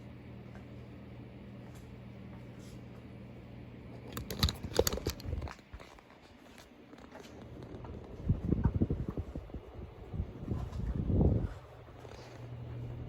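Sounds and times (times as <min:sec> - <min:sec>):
ceiling fan motor humming: 0:00.0 - 0:13.0
clicks crunches and knocks: 0:04.0 - 0:08.2.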